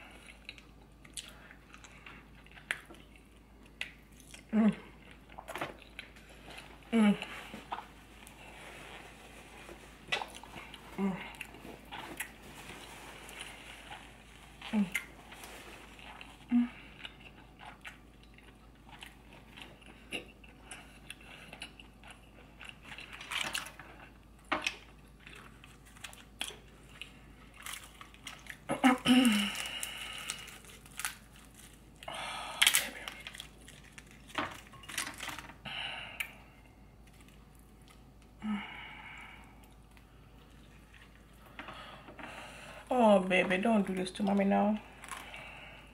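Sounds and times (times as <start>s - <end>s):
chewing and crunching: 0.0s - 35.6s, 36.2s - 38.4s, 39.6s - 42.4s, 44.8s - 45.9s.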